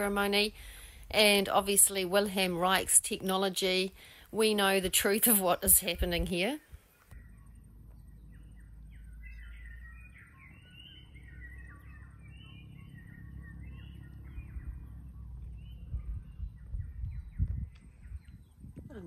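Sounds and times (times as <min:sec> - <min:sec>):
songbirds chirping and warbling: 0:00.0 - 0:19.0
steady low rumble: 0:00.0 - 0:19.0
dull low thumps: 0:13.0 - 0:19.0.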